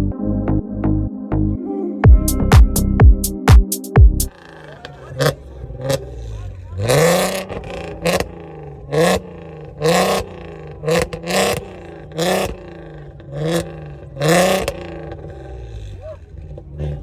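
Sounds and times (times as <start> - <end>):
car engine revving: 4.3 - 17.0.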